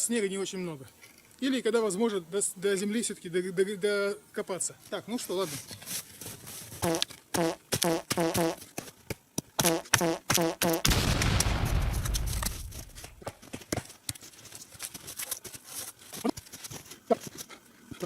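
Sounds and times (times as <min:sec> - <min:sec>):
footsteps crunching in snow: 0:05.3 - 0:07.0, 0:11.5 - 0:17.4
wood cracking and snapping: 0:10.8 - 0:13.4.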